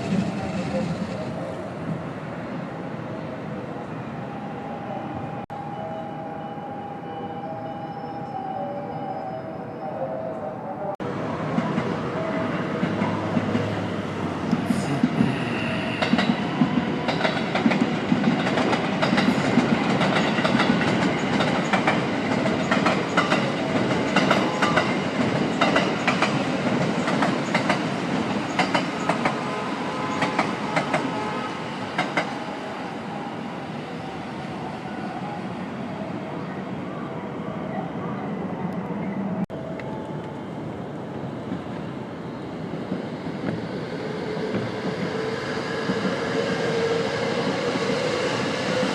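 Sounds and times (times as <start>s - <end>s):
train wheels clicking on rails: 12.6s - 31.2s, 31.9s - 32.4s, 42.7s - 48.9s.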